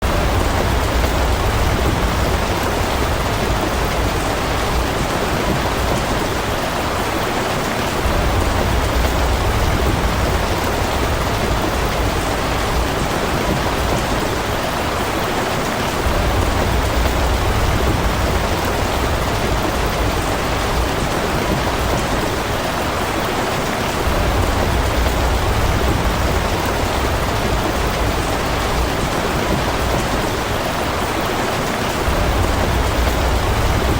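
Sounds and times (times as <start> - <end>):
steady rain: 0.0 - 33.9
deep low rumble: 32.1 - 33.9.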